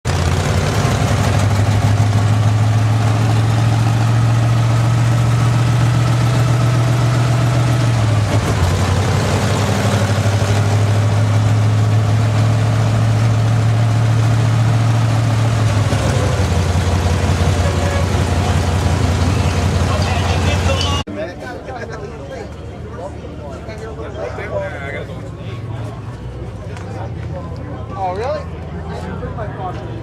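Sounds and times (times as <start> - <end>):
car engine humming: 0.0 - 21.1.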